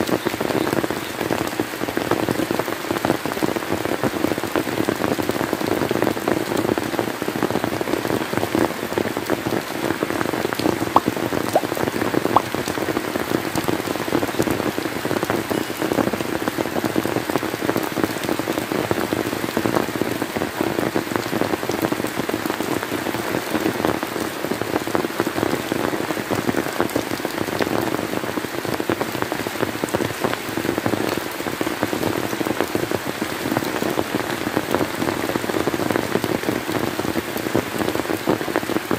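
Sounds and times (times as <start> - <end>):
steady rain patter: 0.0 - 38.9
louder single raindrops: 10.2 - 14.6.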